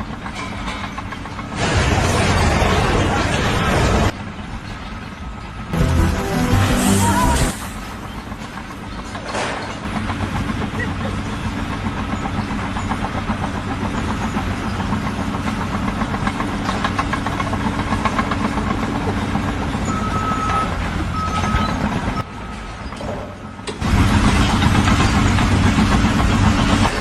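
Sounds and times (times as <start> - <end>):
heavy machine engine rattling: 0.0 - 27.0
short high tones: 5.8 - 7.8.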